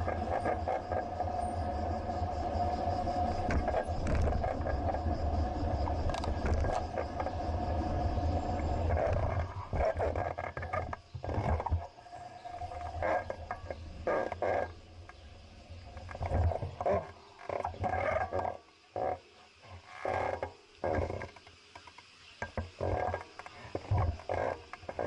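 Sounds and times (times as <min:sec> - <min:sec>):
road rumble: 0:00.0 - 0:10.2
mid-pitched hum: 0:00.0 - 0:10.3
wind noise: 0:00.0 - 0:17.1.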